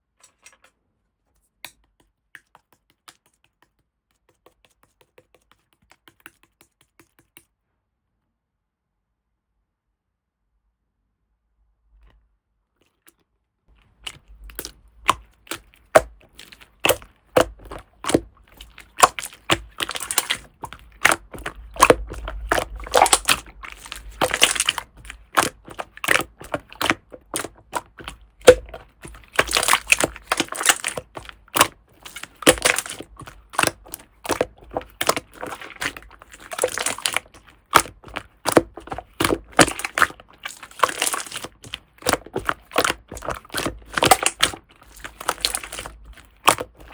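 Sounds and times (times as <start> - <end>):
slime clicking and crackling: 13.8 - 46.9.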